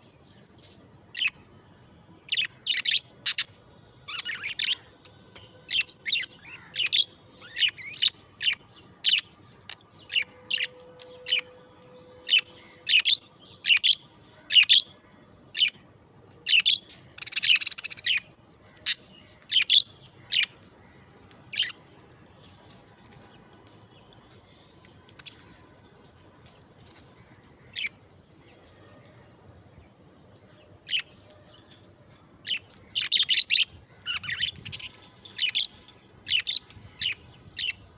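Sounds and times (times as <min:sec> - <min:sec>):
budgerigars chirping: 0:02.4 - 0:03.5, 0:16.5 - 0:20.6.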